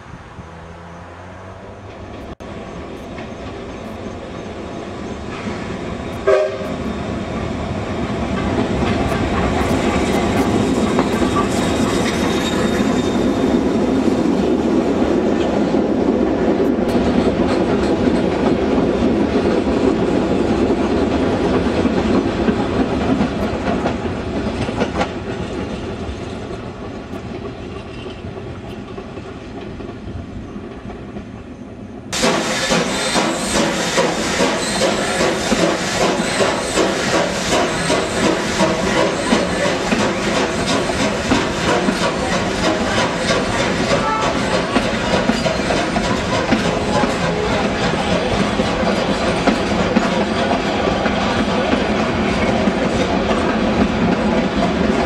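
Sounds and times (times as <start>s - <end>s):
train wheels clattering: 5.2s - 31.4s, 32.2s - 55.0s
train horn toot: 6.2s - 6.8s, 43.9s - 44.8s.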